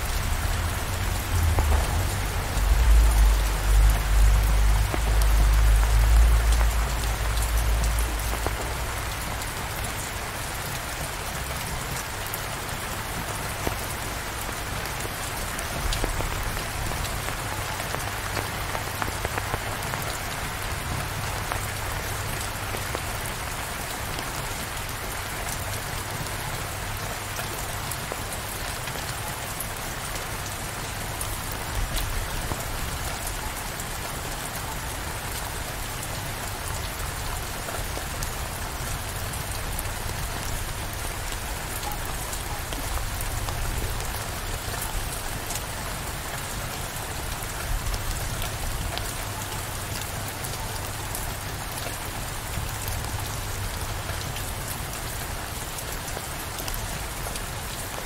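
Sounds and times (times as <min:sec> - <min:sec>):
rain hissing: 0:00.0 - 0:29.2
rain drop ticks: 0:00.1 - 0:10.0, 0:13.2 - 0:24.3.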